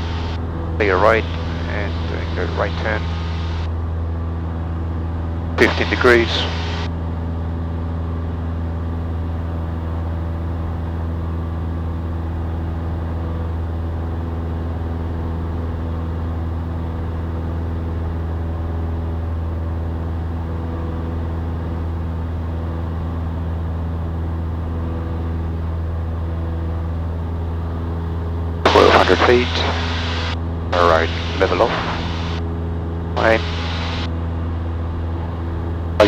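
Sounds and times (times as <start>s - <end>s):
airplane engine and propeller droning: 0.0s - 36.0s.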